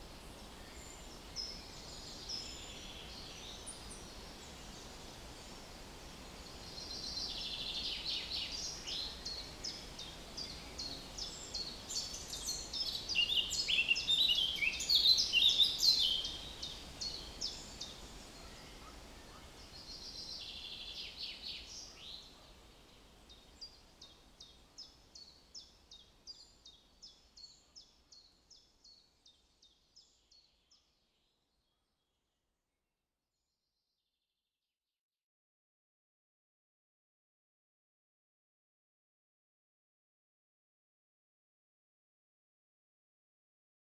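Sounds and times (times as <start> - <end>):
small songbirds twittering: 0.0 - 30.8.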